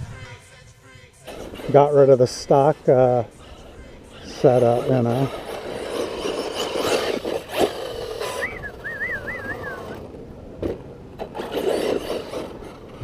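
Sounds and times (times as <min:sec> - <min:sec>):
toy truck scrabbling over dirt: 0:01.2 - 0:13.0
wavering whistle-like tone: 0:08.3 - 0:10.0.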